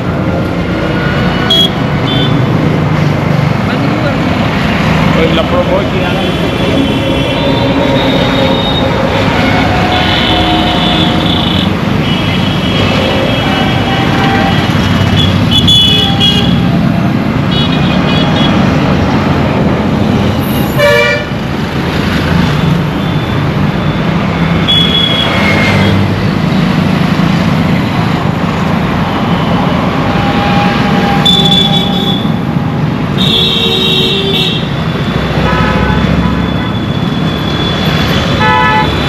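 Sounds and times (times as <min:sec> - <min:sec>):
vehicle engines din: 0:00.0 - 0:39.0
car horns honking: 0:01.4 - 0:02.4, 0:06.0 - 0:16.7, 0:20.7 - 0:21.4, 0:29.9 - 0:32.4, 0:35.4 - 0:39.0.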